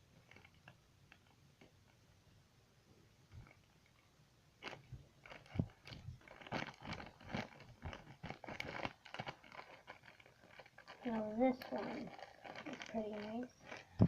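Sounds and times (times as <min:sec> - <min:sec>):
slime squishing: 0:04.6 - 0:14.0
small clicks of beads: 0:04.6 - 0:14.0.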